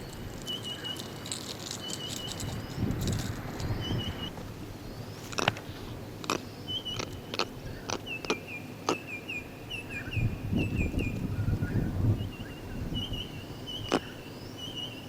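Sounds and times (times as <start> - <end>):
bird chirping: 0.0 - 15.0
wind rumble on microphone: 2.0 - 8.4, 9.4 - 14.4
sharp clicks: 5.2 - 9.1.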